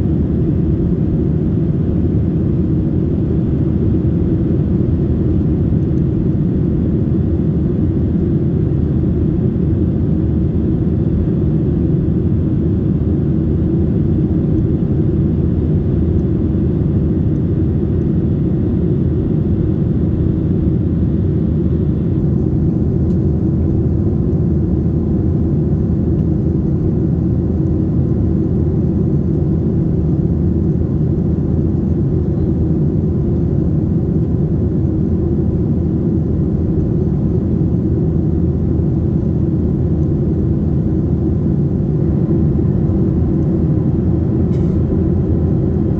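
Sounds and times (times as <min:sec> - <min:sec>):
airplane engine noise: 0:00.0 - 0:45.9
airflow over fuselage: 0:36.3 - 0:45.9.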